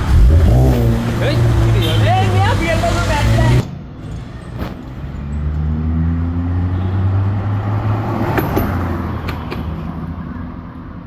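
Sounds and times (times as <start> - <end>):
car engine running at low revs: 0.0 - 3.7.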